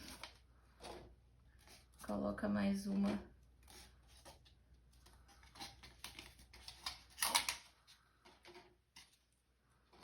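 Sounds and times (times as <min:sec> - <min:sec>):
plastic cups clicking and rustling: 0:02.9 - 0:10.0.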